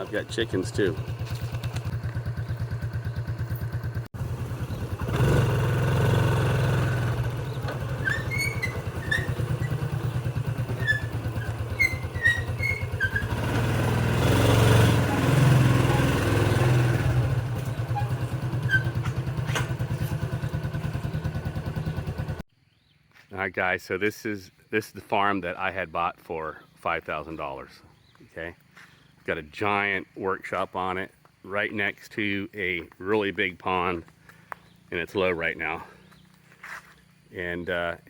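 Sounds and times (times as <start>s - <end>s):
small engine running: 0.0s - 22.4s.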